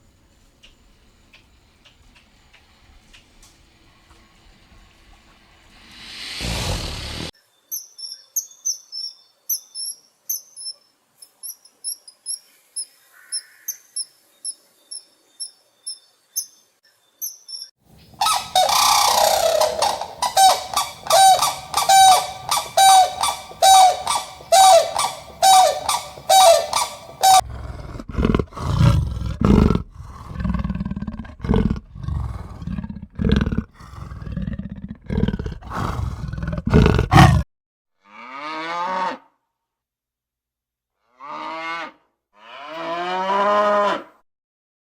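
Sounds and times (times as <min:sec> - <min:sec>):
deeper animal calls: 0:05.9 - 0:07.3, 0:18.2 - 0:37.4
high thin chirps: 0:17.2 - 0:27.4
quickly repeated animal calls: 0:18.2 - 0:34.3, 0:35.1 - 0:37.4.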